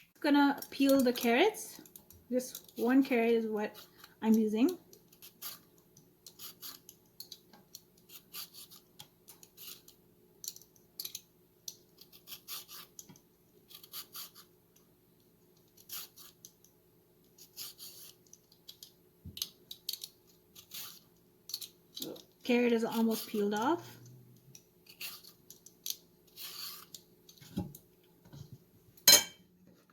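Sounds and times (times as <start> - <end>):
carrot peeling scrapes: 5.1 - 6.9, 8.0 - 9.9, 12.0 - 13.0, 13.7 - 14.5, 15.8 - 16.5, 17.4 - 18.8, 19.8 - 22.2, 22.8 - 24.0, 24.8 - 27.4.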